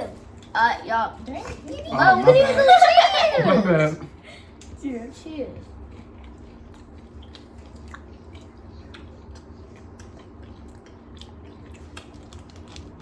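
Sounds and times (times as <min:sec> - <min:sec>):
steady low hum: 0:00.0 - 0:13.0
chewing wafer bar: 0:05.9 - 0:13.0.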